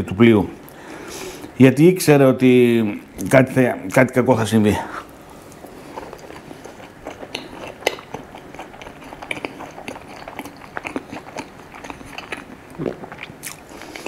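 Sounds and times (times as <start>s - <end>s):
person chewing: 4.9s - 14.0s
wet mouth clicks and smacks: 7.1s - 14.0s.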